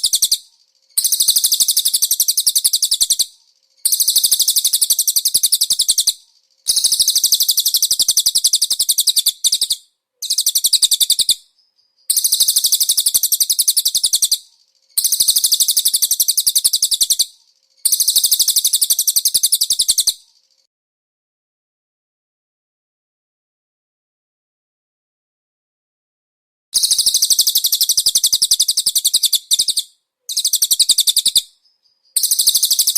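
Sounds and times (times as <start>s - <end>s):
bird high-pitched trills: 26.8s - 32.9s.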